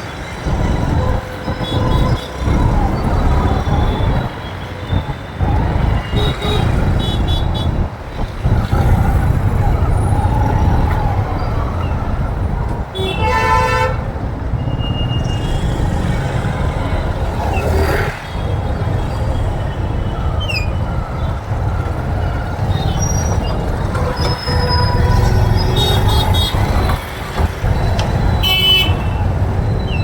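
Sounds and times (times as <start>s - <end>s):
road and engine rumble: 0.0s - 30.0s
vehicle horn honking: 13.0s - 14.0s.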